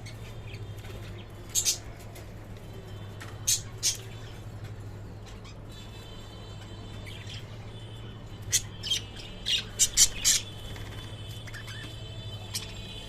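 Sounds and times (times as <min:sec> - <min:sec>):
parrots squawking and chirping: 0:00.0 - 0:02.0, 0:03.4 - 0:04.4, 0:08.4 - 0:13.0.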